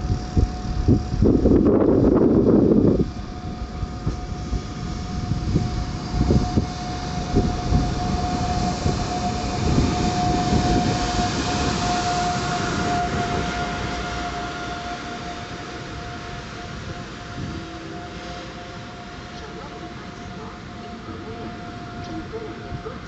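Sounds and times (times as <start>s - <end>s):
high-pitched squeal: 0.0s - 23.0s
train wheels rumbling and knocking: 0.0s - 23.0s.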